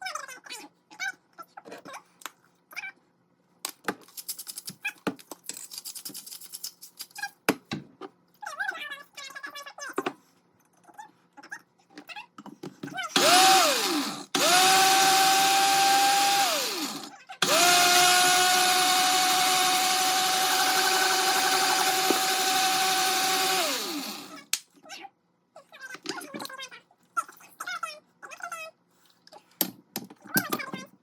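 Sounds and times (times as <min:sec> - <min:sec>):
blender motor whining: 0:13.1 - 0:24.4.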